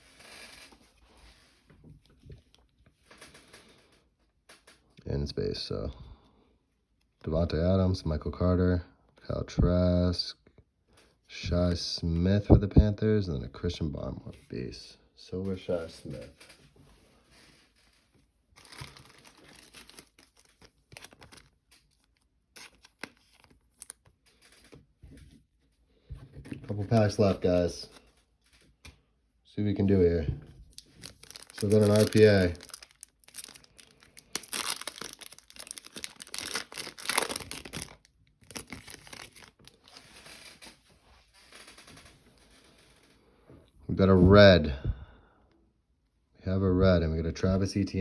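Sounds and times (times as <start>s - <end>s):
wrapper tearing and crinkling: 0.0s - 0.8s, 17.3s - 24.8s, 30.7s - 40.8s
cards being handled: 18.6s - 24.8s, 30.8s - 40.9s.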